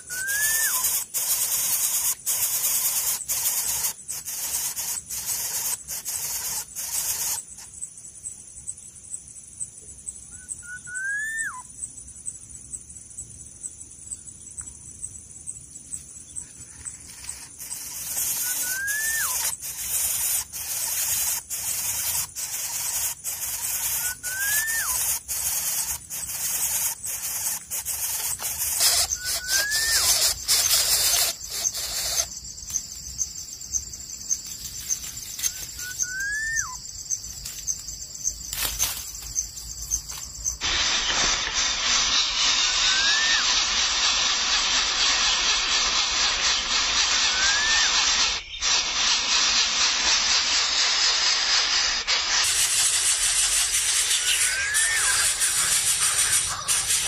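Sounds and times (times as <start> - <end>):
bird whistle rising then falling: 0.0 - 1.4, 10.3 - 11.7, 17.6 - 32.8, 33.7 - 37.2, 38.7 - 49.8, 53.7 - 57.0
steady high hiss: 0.0 - 57.0.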